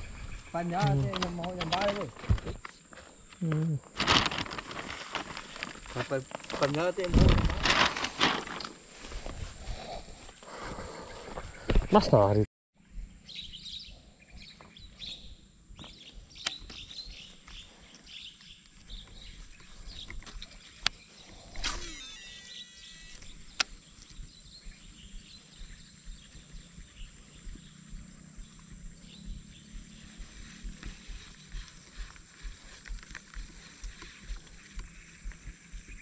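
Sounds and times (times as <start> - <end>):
birds chirping: 0.0 - 3.9, 8.4 - 36.0
steady high-pitched whine: 0.0 - 10.4, 18.8 - 36.0
sharp clicks: 21.6 - 24.2.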